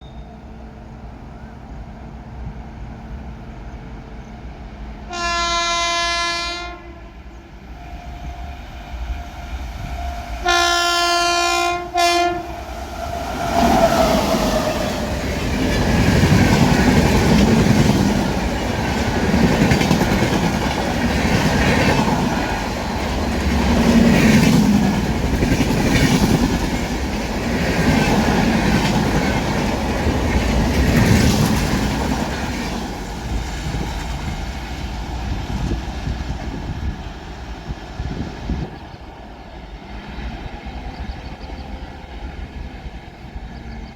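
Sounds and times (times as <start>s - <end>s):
locomotive horn blasts: 5.1s - 12.7s
train wheels clattering over rail joints: 15.1s - 36.6s.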